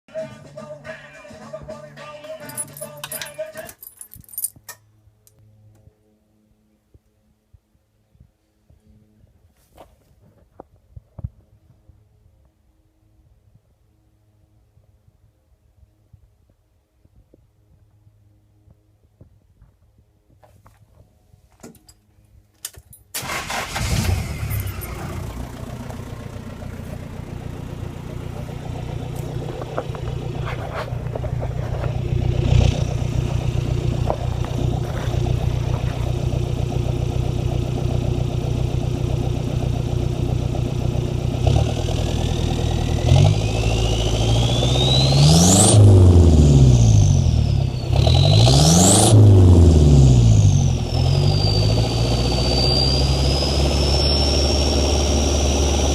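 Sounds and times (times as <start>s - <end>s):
diesel engine starting and idling: 23.1s - 55.9s
engine revving: 23.2s - 55.9s.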